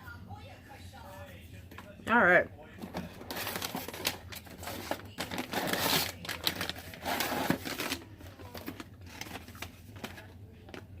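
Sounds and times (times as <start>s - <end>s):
plastic snack bag crinkling: 3.2s - 11.0s.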